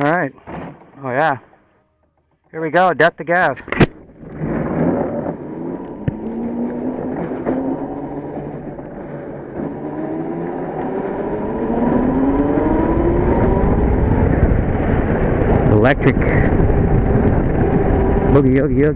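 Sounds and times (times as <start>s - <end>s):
electric motor whine: 4.2s - 15.0s.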